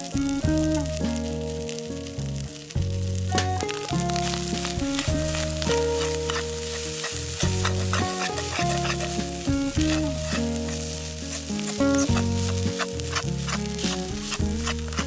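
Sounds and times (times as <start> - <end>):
background music with bass: 0.0 - 15.0
rice sizzling in a pan: 0.0 - 15.0
spatula scraping and tapping: 5.0 - 15.0.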